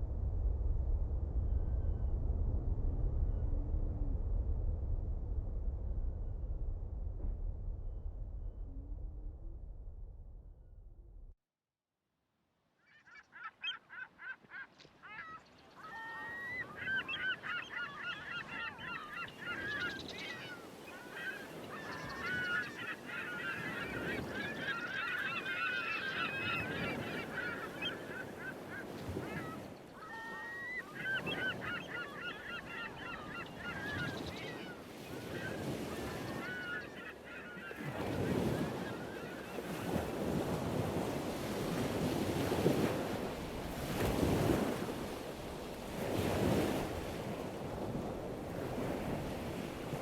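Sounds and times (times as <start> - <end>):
birds honking: 13.3 - 45.2.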